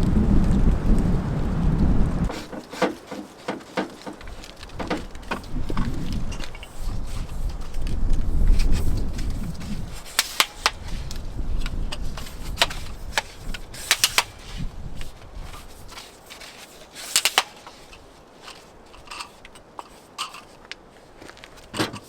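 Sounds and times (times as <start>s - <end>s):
low rumble: 0.0s - 2.3s
tripod parts clicking: 2.3s - 20.9s.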